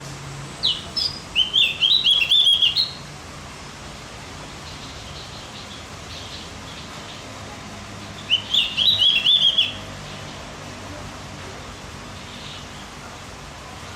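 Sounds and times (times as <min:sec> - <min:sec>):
bird singing chattering phrase: 0:00.6 - 0:03.0, 0:08.1 - 0:10.4
faint bird chirps: 0:00.6 - 0:03.0, 0:08.2 - 0:09.8.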